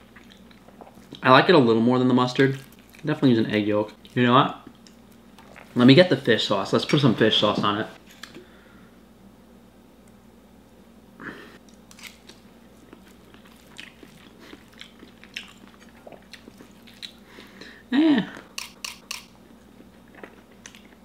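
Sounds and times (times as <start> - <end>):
close-up chewing: 0.0 - 1.2, 2.5 - 3.1, 11.7 - 17.6, 18.4 - 21.0.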